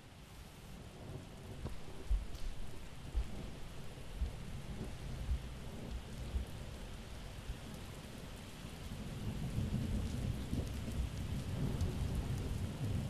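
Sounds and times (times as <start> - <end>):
steady rain: 0.0 - 13.0
thunder rumbling: 0.9 - 8.3, 8.9 - 13.0
soft low thuds: 1.5 - 6.6.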